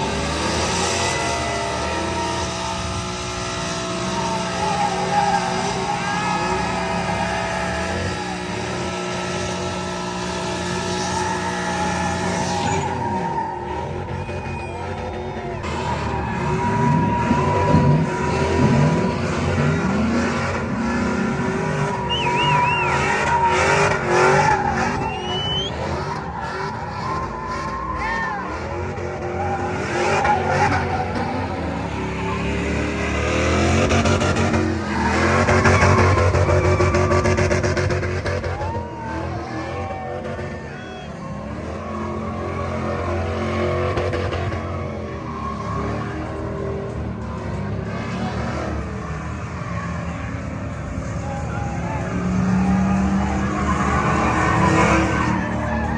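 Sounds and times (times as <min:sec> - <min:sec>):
vehicle engine running loud: 0:00.0 - 0:55.9
tyres squealing: 0:21.7 - 0:28.5.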